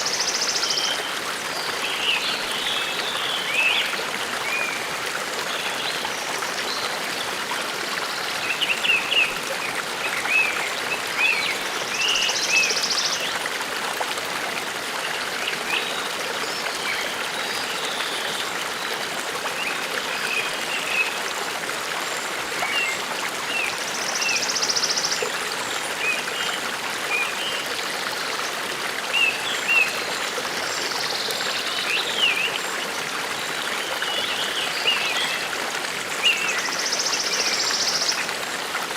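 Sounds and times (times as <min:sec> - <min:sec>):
brook running: 0:00.0 - 0:38.9.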